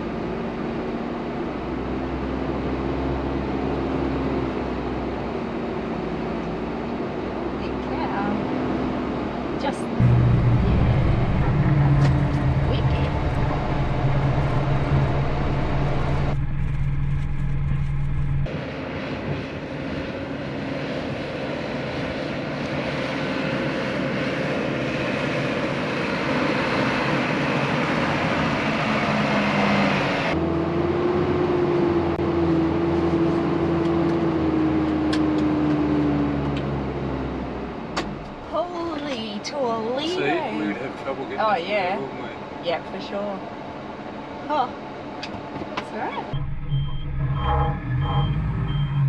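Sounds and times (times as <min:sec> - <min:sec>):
diesel truck engine running: 0:00.0 - 0:49.0.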